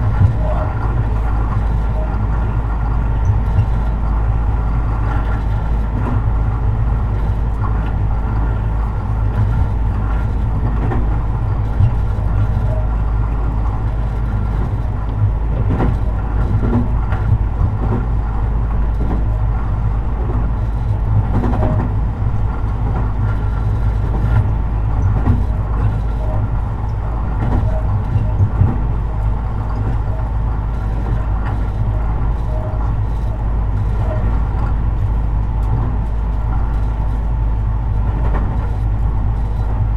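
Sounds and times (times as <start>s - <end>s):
electric train rumble and whine: 0.0s - 39.9s
sharp clicks and knocks: 9.3s - 19.4s, 20.2s - 29.0s, 37.9s - 39.9s.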